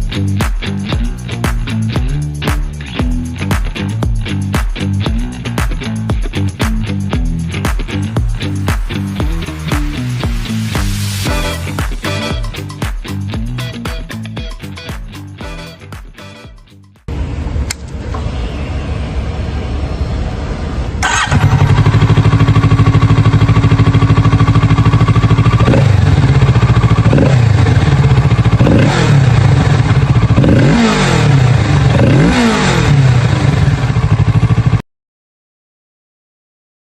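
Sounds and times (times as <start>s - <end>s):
engine revving: 5.1s - 13.9s, 21.0s - 34.8s
motorcycle engine starting: 20.9s - 34.8s
engine idling loudly: 21.0s - 34.8s.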